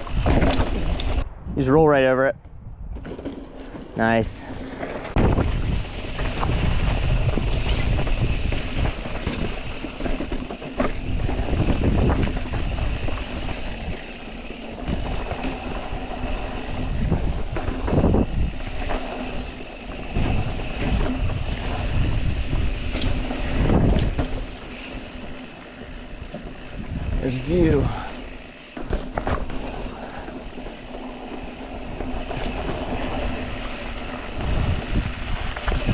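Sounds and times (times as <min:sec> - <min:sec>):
bike knocking and rattling: 0:00.0 - 0:01.2, 0:02.8 - 0:35.9
bike tyre noise: 0:00.0 - 0:35.9
wind buffeting microphone: 0:00.0 - 0:35.9.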